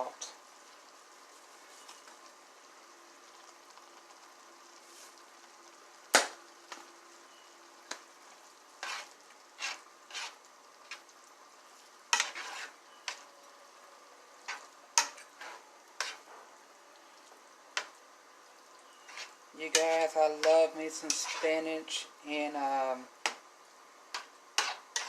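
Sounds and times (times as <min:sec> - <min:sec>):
utensil scraping and knocking pot: 0:08.8 - 0:11.0, 0:12.1 - 0:13.2, 0:14.4 - 0:16.5, 0:18.9 - 0:21.8, 0:24.1 - 0:25.0.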